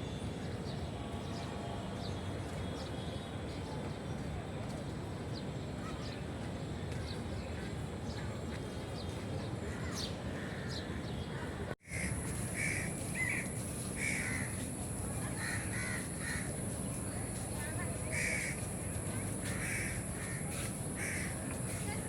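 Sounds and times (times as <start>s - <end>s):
low background noise: 0.0s - 22.0s
crows cawing: 11.8s - 14.6s, 15.4s - 16.6s, 18.1s - 18.7s, 19.4s - 21.8s.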